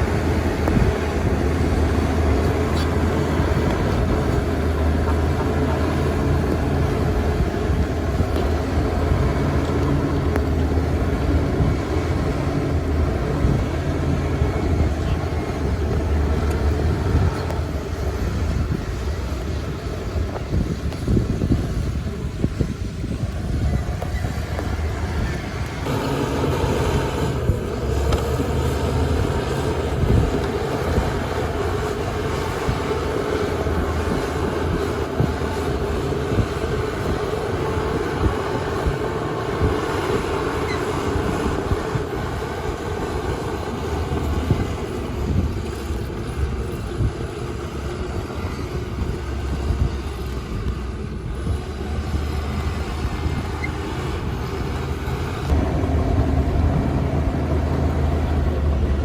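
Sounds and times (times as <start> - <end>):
diesel earthmoving machinery running: 0.0 - 59.0.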